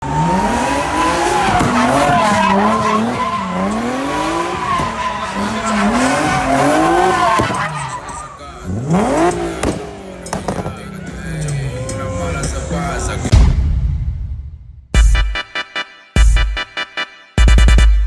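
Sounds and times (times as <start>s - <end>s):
car engine revving hard: 0.0s - 13.3s
tires squealing on pavement: 0.0s - 13.3s.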